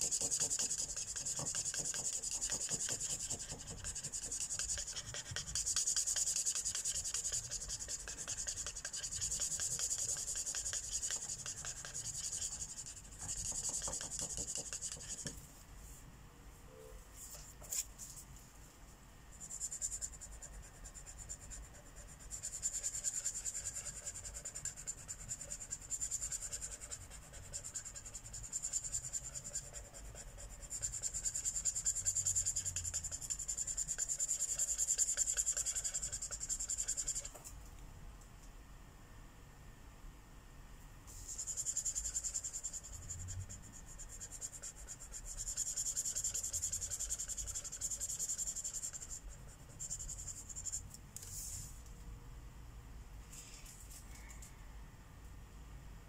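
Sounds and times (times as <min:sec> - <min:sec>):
marker scratching on paper: 0:00.0 - 0:15.4, 0:19.4 - 0:37.4, 0:41.1 - 0:51.7.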